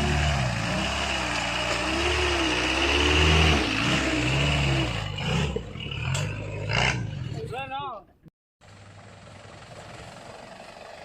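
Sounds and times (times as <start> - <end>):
engine revving under load: 0.0 - 7.4.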